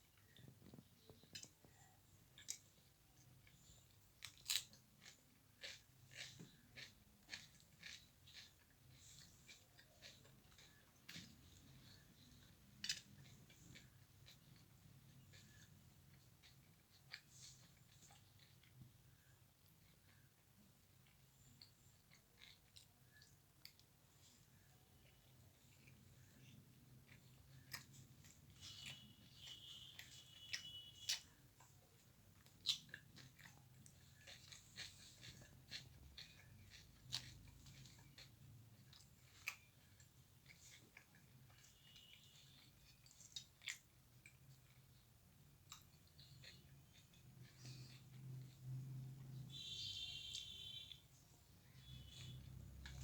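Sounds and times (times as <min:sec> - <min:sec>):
faint low hum: 0:00.0 - 0:53.0
soft chewing: 0:00.0 - 0:53.0
soft mouth clicks and smacks: 0:45.6 - 0:49.4.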